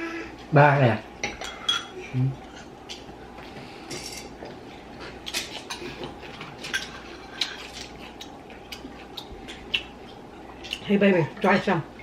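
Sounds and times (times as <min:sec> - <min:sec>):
utensils clinking against dishes: 0:01.2 - 0:03.1, 0:03.9 - 0:04.4, 0:05.3 - 0:08.0, 0:11.4 - 0:11.8.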